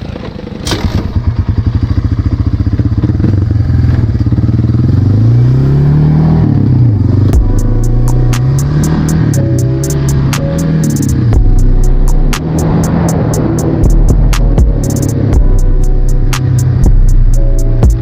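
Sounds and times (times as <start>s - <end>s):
dirt bike engine: 0.0s - 15.6s
sharp ticks: 7.3s - 18.0s.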